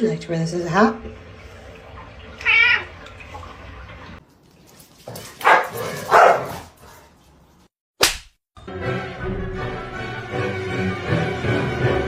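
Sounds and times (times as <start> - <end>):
cat meowing: 2.4 - 3.0.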